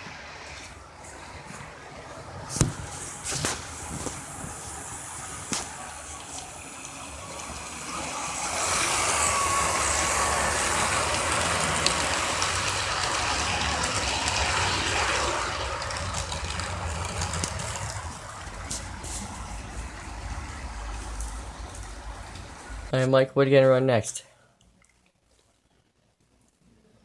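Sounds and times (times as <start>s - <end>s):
model train wheels on rails: 0.0s - 22.9s
model train motor humming: 1.8s - 22.9s.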